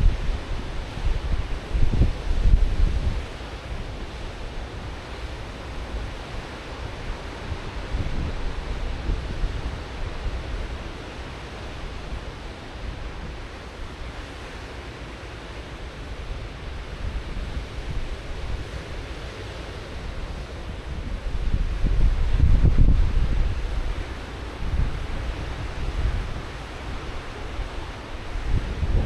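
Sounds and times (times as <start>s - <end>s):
wind buffeting microphone: 0.0s - 4.8s, 20.0s - 29.0s
ocean waves breaking on shore: 0.0s - 29.0s.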